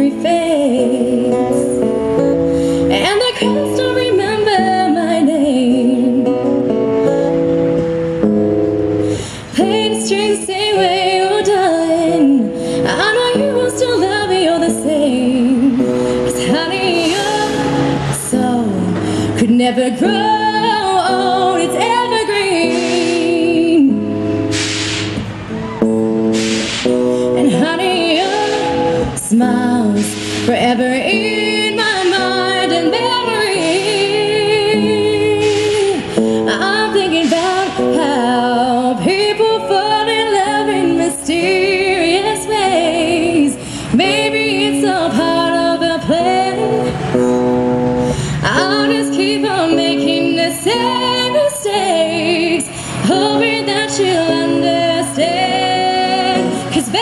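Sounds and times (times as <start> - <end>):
woman singing a slow ballad: 0.0 - 7.3, 9.1 - 24.5, 26.8 - 57.0
strummed acoustic guitar: 0.0 - 57.0.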